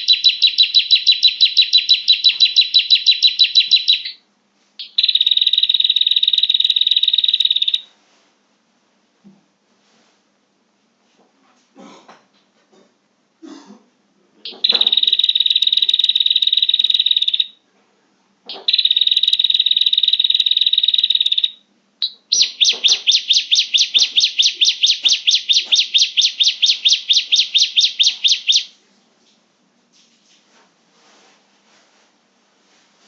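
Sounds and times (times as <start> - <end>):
bird rapid sharp chattering: 14.5 - 17.4, 18.5 - 28.7
bird buzzy trills: 18.5 - 28.7.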